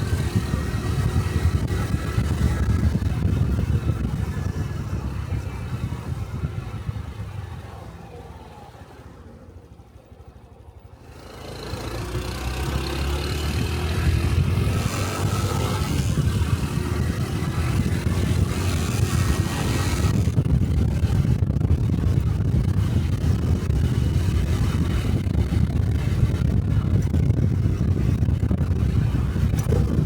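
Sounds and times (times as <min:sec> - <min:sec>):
wind rush: 0:00.0 - 0:07.6, 0:13.5 - 0:30.0
motorcycle engine: 0:00.0 - 0:30.0.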